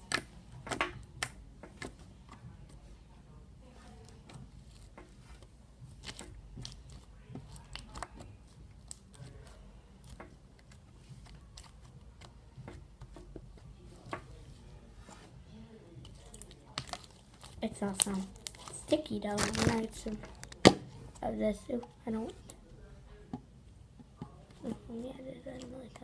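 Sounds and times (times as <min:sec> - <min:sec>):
slime squished by hand: 0:16.1 - 0:20.8.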